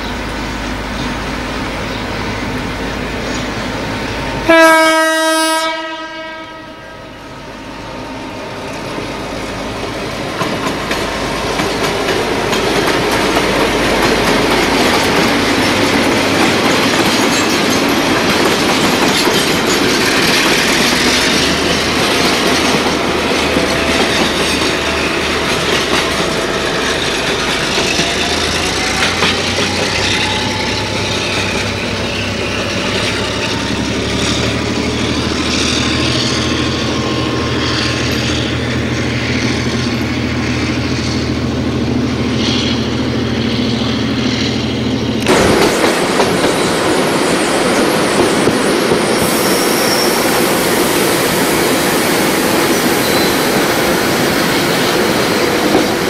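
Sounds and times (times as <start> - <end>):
train running on rails: 0.0 - 56.0
train horn: 4.4 - 7.2.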